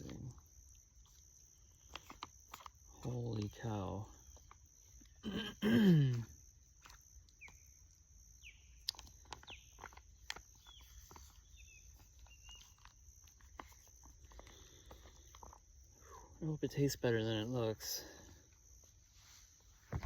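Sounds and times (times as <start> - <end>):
high bird chirps: 8.4 - 8.8.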